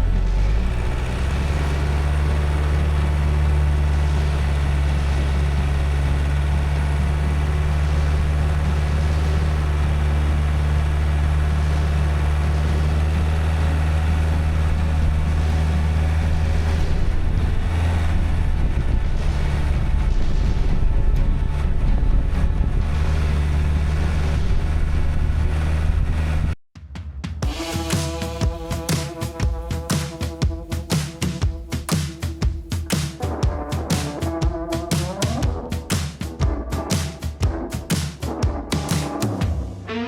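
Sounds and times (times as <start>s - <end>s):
vehicle engine droning: 0.0s - 26.6s, 27.5s - 38.4s.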